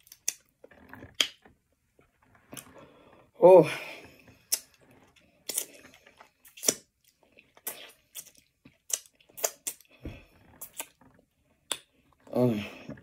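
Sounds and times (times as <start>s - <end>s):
mouth clicks and crunches: 0.0s - 1.5s, 4.4s - 13.0s
person chewing: 0.0s - 1.5s, 4.4s - 13.0s.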